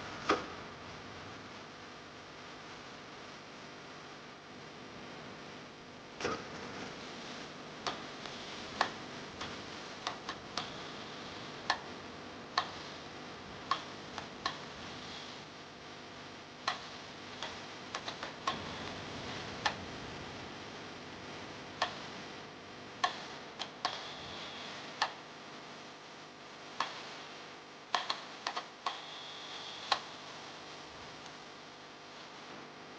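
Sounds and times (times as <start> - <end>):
steady hiss: 6.2 - 32.9
sharp clicks and light taps: 13.7 - 14.6, 16.7 - 19.0, 28.0 - 29.1.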